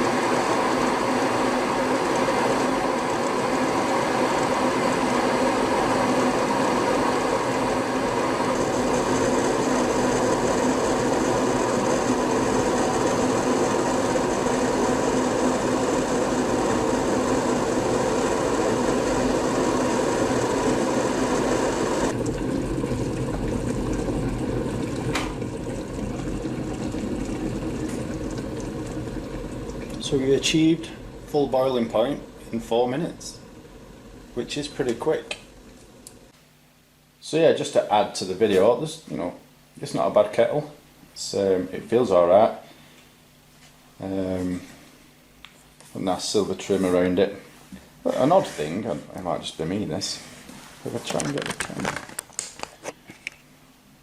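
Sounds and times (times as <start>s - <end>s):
electric kettle boiling: 0.0s - 36.3s.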